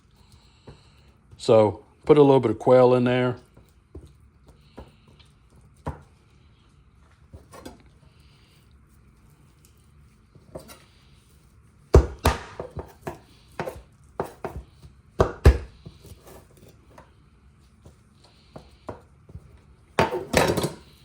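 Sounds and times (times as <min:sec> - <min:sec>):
knife chopping on a counter: 0:05.8 - 0:06.1, 0:10.4 - 0:10.8, 0:11.9 - 0:16.4, 0:18.5 - 0:20.9.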